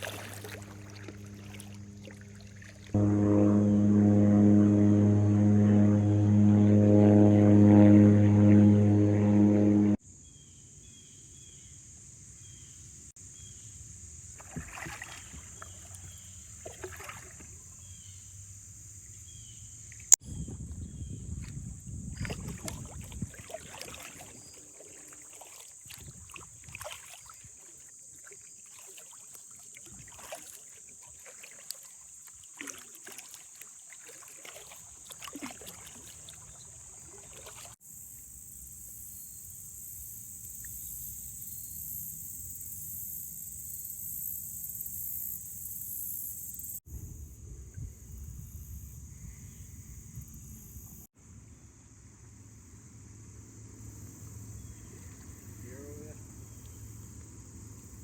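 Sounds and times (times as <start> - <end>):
paddle strokes splashing: 0.0 - 10.0, 14.3 - 18.1, 21.4 - 37.8
propeller airplane engine droning: 0.1 - 10.0
high-pitched buzz: 3.0 - 10.0.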